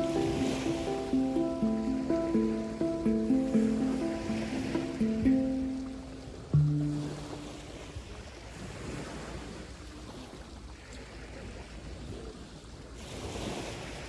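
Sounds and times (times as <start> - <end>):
hang drum note: 0.0 - 7.9
sea waves washing on shore: 0.0 - 14.0.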